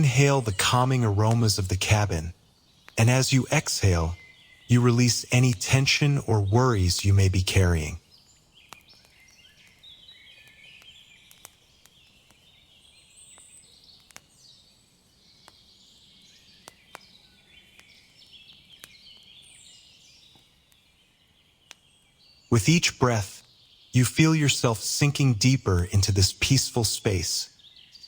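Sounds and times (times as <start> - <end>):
wood fire crackling and popping: 0.0 - 27.7
faint birdsong chirping: 0.0 - 28.0.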